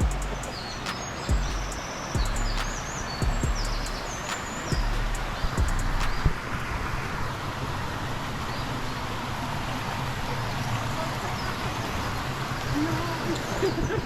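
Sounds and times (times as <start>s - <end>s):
low wavering sound: 0.0s - 6.3s.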